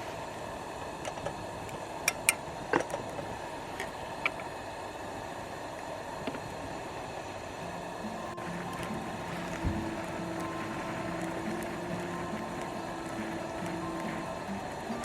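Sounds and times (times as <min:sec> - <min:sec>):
wood fire crackling and popping: 0:07.6 - 0:15.0.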